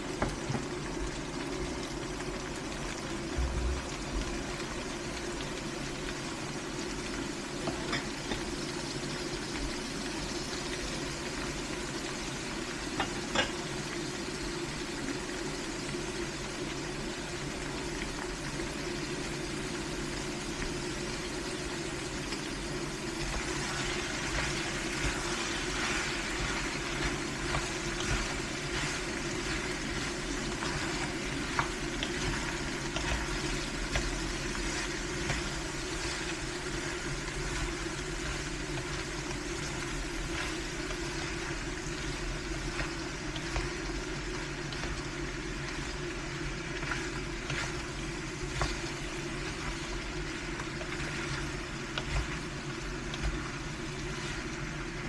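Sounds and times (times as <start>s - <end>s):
food sizzling in a pan: 0.0s - 55.0s
low steady hum: 0.6s - 6.9s, 20.6s - 55.0s.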